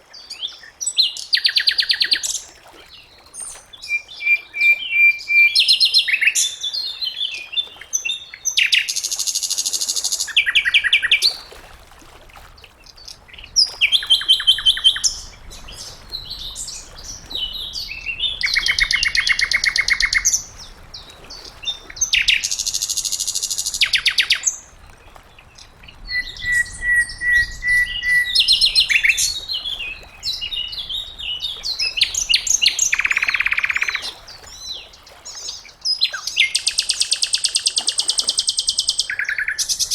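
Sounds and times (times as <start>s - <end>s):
flycatcher singing trills and whistles: 31.7s - 34.2s.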